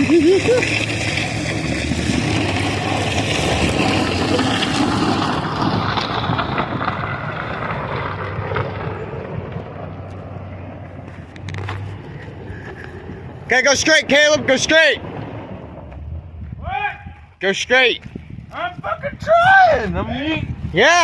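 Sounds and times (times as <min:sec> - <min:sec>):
vehicle running: 0:00.0 - 0:21.0
wind noise on microphone: 0:15.0 - 0:21.0.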